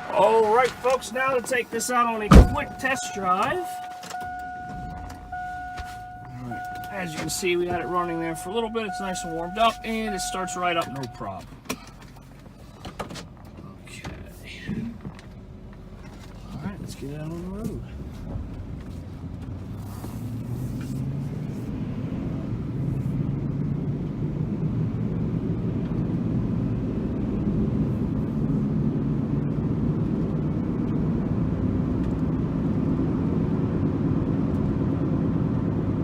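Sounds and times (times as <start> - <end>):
pickup engine accelerating: 0.0 - 36.0
road noise: 0.0 - 36.0.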